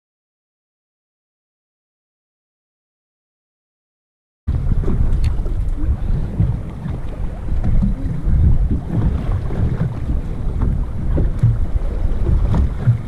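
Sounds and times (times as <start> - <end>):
wind buffeting microphone: 4.5 - 13.0.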